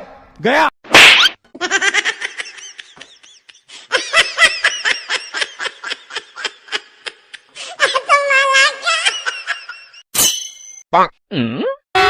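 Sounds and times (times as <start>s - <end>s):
person laughing: 1.6s - 8.1s.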